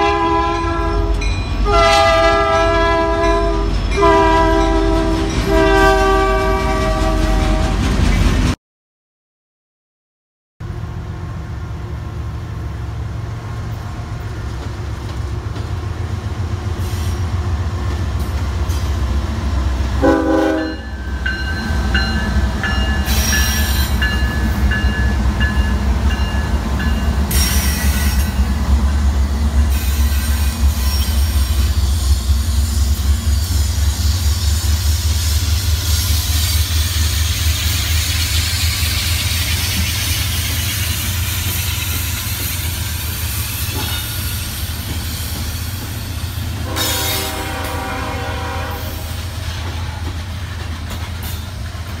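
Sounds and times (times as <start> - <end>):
train horn note: 0.0 - 7.9, 20.0 - 21.0, 46.5 - 50.1
diesel locomotive engines rumbling: 0.0 - 8.6, 10.6 - 52.0
hiss of wheels on rail: 16.7 - 17.4, 29.6 - 52.0.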